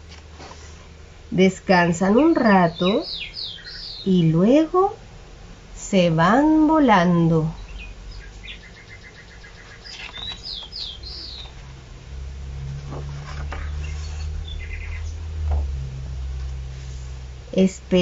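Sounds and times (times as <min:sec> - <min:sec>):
book page turning: 0:00.0 - 0:00.8, 0:09.8 - 0:10.8, 0:12.7 - 0:14.3
small birds chirping: 0:01.8 - 0:04.8, 0:07.1 - 0:11.8, 0:12.9 - 0:15.3.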